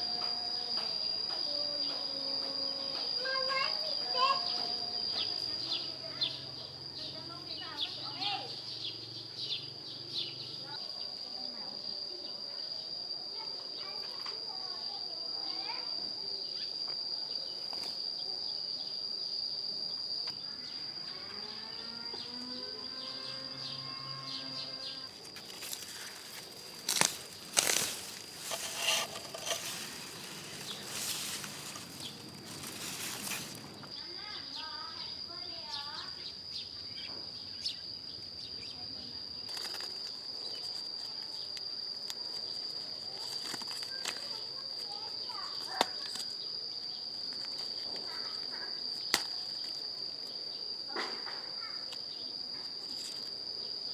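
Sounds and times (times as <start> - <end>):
crickets droning: 0.0 - 53.9
falling bird chirps: 24.1 - 34.0.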